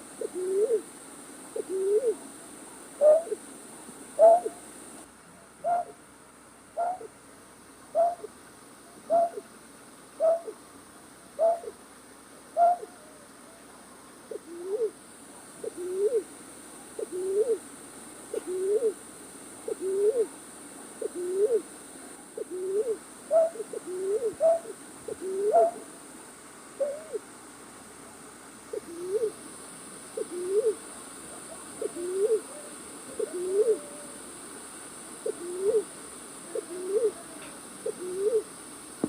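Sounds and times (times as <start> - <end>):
night bird low rising call: 0.2 - 0.9, 1.6 - 2.2, 3.0 - 3.4, 4.2 - 4.6, 5.6 - 6.0, 6.8 - 7.2, 7.9 - 8.3, 9.0 - 9.5, 10.2 - 10.6, 11.4 - 11.8, 12.6 - 13.3, 15.6 - 16.3, 18.3 - 19.0, 19.7 - 20.3, 21.0 - 21.7, 22.4 - 25.9, 26.8 - 27.3, 28.7 - 29.4, 30.2 - 34.4, 35.2 - 38.5
night bird high falling call: 4.2 - 4.6, 22.6 - 25.9.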